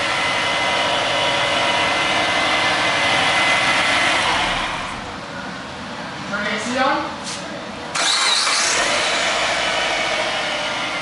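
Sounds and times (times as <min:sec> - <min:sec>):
car engine running: 0:00.0 - 0:05.5, 0:07.9 - 0:11.0.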